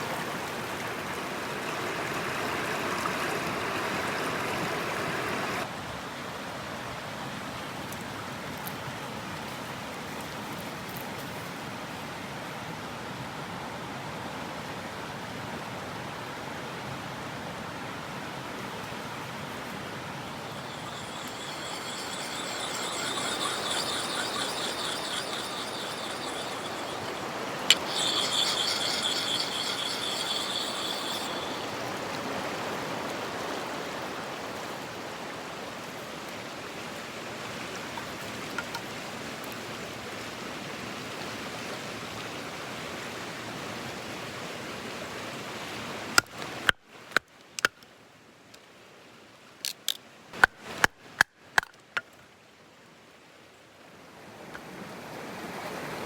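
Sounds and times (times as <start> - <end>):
mountain stream running: 0.0 - 5.7, 18.6 - 46.6
high squealing scrape: 19.6 - 34.6.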